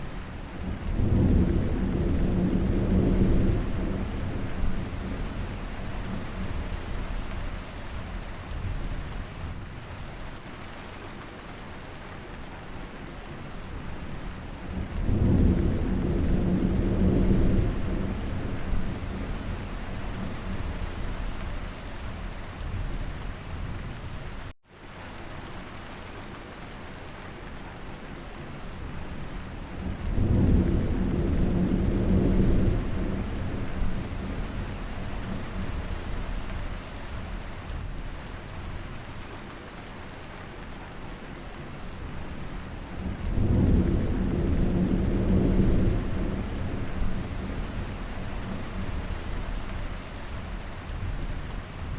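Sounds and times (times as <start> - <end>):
steady rainfall: 0.0 - 51.9
thunder rolling: 43.2 - 51.9.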